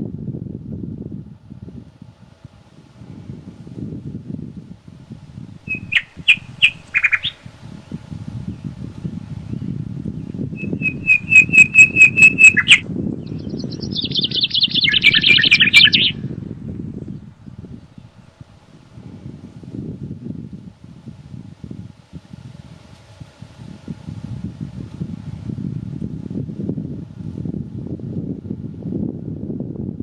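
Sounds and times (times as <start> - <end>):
wind in forest: 0.0 - 30.0
songbird calls: 5.6 - 7.5, 10.5 - 16.2
bird chattering trill: 5.7 - 7.5, 10.6 - 16.2.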